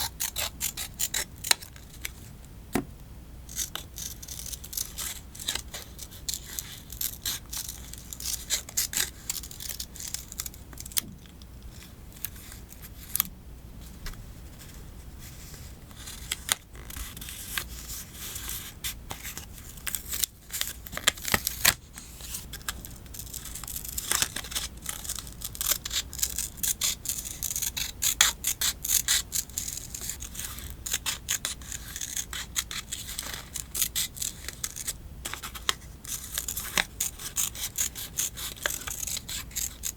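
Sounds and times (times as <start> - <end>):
scissors cutting paper: 0.0 - 2.2, 3.5 - 11.1, 15.9 - 39.9
paper rustling and tearing: 15.4 - 39.9.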